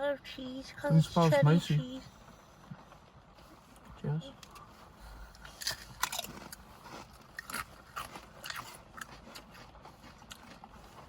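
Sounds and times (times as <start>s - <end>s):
low steady hum: 0.0s - 11.0s
crisps crunching in mouth: 4.4s - 11.0s.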